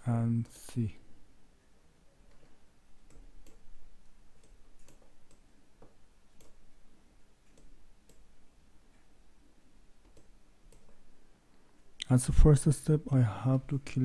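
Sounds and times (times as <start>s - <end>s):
computer mouse clicking: 2.3s - 6.7s, 7.4s - 8.4s, 10.0s - 11.1s.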